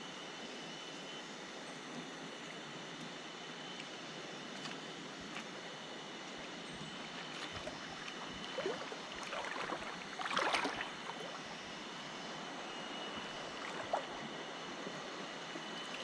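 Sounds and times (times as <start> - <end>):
water splashes: 7.1 - 11.7, 13.1 - 14.4
fast-flowing river: 8.5 - 11.4.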